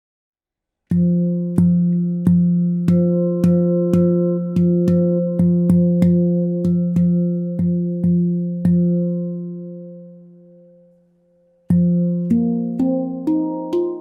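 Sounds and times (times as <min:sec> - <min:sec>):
handpan notes: 0:00.9 - 0:14.0.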